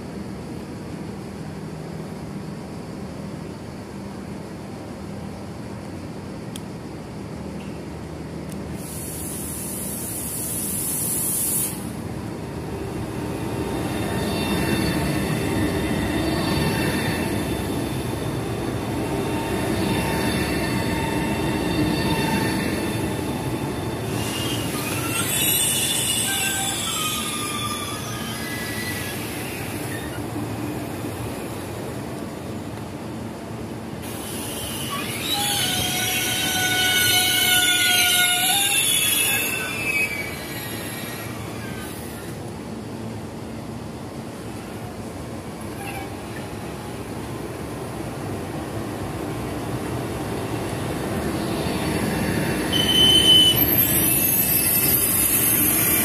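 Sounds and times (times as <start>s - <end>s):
train rumbling: 0.0s - 56.0s
wheel and brake squeals: 13.2s - 18.2s, 19.0s - 30.8s, 34.0s - 42.4s, 45.7s - 46.5s, 51.3s - 56.0s.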